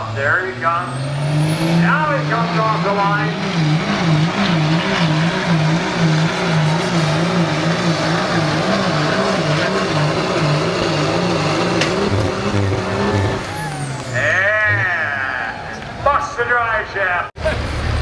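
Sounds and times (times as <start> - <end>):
diesel truck engine at full throttle: 0.0 - 16.1, 17.4 - 18.0
high whine gliding down: 1.6 - 15.0.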